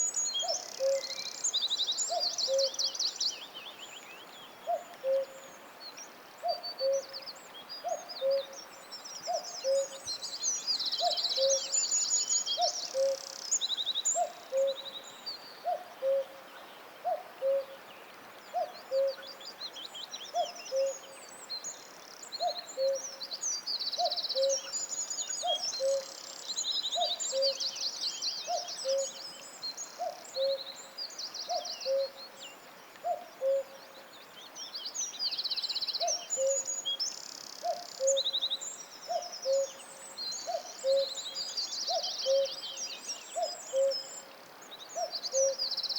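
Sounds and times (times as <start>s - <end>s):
songbirds trilling and chirping: 0.0s - 45.9s.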